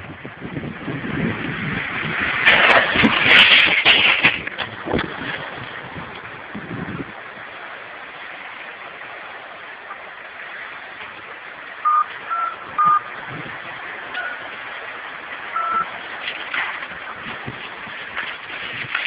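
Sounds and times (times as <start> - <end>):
steady rushing hiss: 0.0 - 19.0
short electronic beeps: 11.8 - 13.1, 14.2 - 14.5, 15.6 - 15.9.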